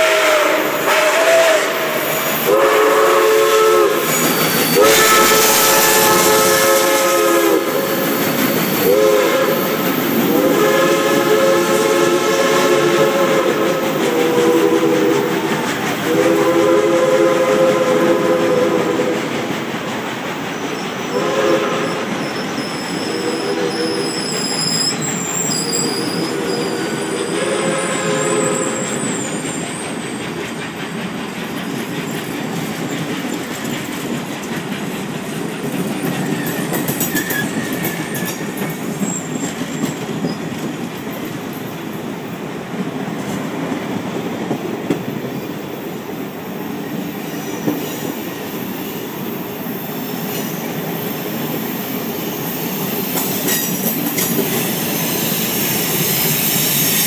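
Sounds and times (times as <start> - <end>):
train horn blasts: 0.0 - 8.1, 8.8 - 19.3, 21.1 - 22.2, 22.9 - 24.3, 26.0 - 29.1
train wheels clicking on rails: 0.0 - 57.0.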